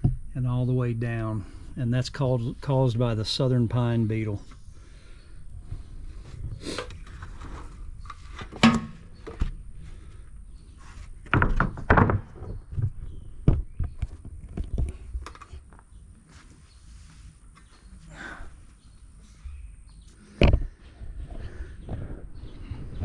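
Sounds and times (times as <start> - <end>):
wooden boards thunking and knocking: 11.2 - 14.2.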